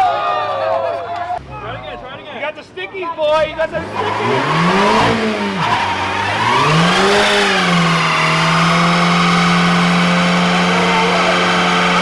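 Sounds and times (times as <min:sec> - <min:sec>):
car engine revving: 0:03.3 - 0:12.0.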